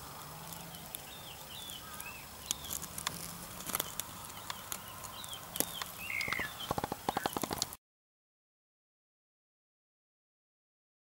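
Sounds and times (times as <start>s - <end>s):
small birds chirping: 0.0s - 7.8s
sharp clicks: 2.4s - 7.8s.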